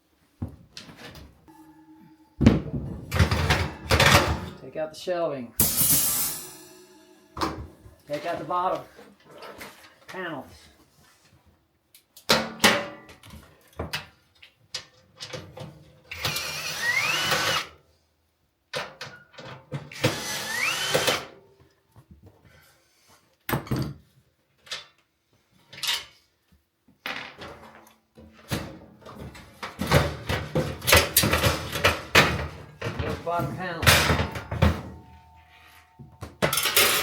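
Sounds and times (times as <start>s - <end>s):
metal panel knocks and clatters: 2.4s - 4.6s
cordless drill spinning up: 16.1s - 17.7s, 20.0s - 21.1s.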